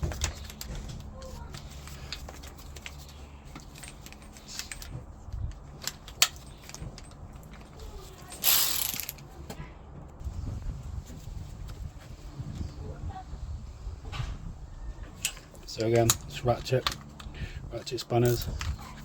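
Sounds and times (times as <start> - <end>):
sharp metal clicks and knocks: 2.1 - 9.3
ratchet spanner clicking: 8.4 - 9.2.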